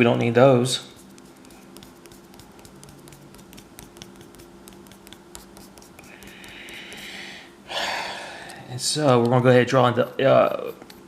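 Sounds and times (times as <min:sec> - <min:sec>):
pencil scratching on paper: 0:00.8 - 0:07.1, 0:09.8 - 0:11.0
eraser rubbing on paper: 0:00.8 - 0:07.2, 0:09.8 - 0:11.0.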